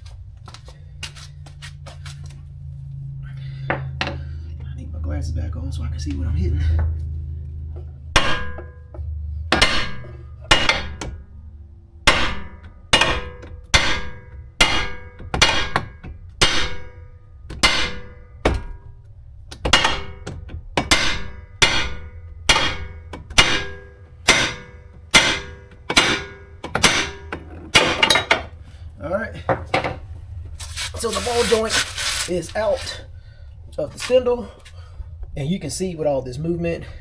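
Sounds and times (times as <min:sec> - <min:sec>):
hammer striking metal: 0:08.2 - 0:08.8, 0:09.5 - 0:11.2, 0:12.1 - 0:18.7, 0:19.7 - 0:28.5.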